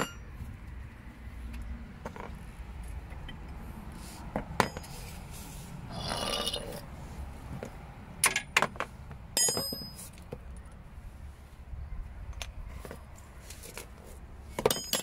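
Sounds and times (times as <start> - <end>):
metal tools clinking on steel: 9.4 - 10.2, 14.6 - 15.0.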